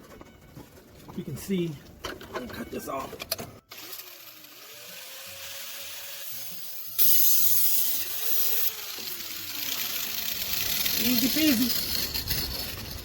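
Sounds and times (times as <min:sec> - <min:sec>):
power tool cutting exhaust pipe: 0:03.7 - 0:13.0.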